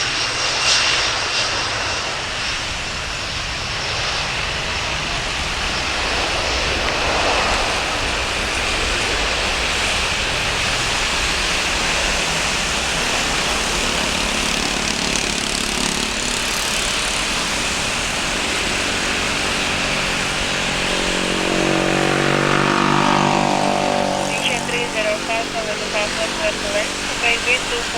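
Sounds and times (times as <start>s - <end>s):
jet engines roaring: 0.0s - 27.9s
pitched tone: 21.0s - 27.9s.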